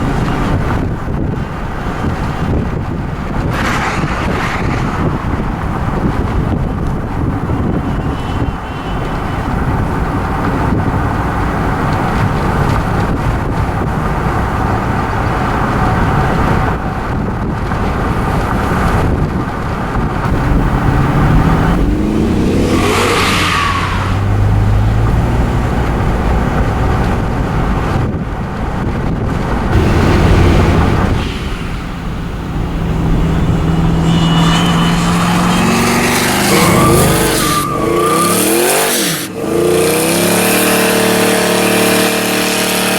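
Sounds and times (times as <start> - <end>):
car engine revving on the move: 0.0 - 42.9.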